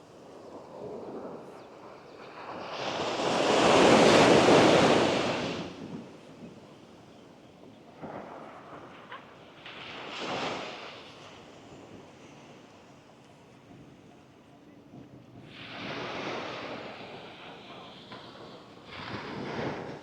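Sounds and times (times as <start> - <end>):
waves washing up sand: 2.4 - 6.4, 9.6 - 12.7, 15.5 - 20.0.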